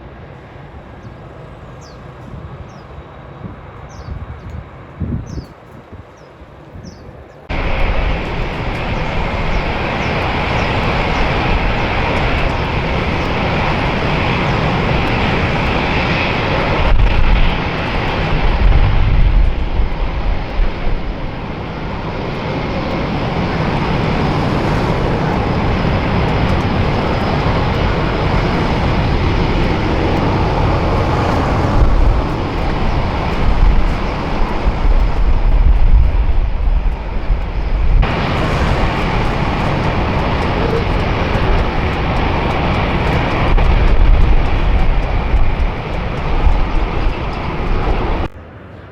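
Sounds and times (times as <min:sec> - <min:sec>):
jet engines running: 0:07.1 - 0:48.9.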